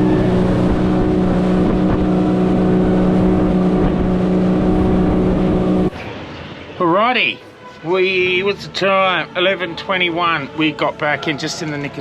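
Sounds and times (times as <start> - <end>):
outboard motor running: 0.0 - 5.9
rushing wind and water: 0.0 - 10.8.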